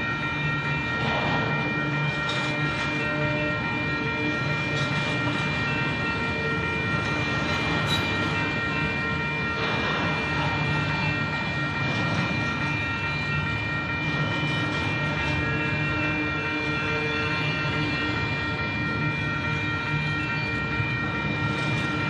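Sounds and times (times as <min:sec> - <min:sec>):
crossing warning bell ringing: 0:00.0 - 0:22.0.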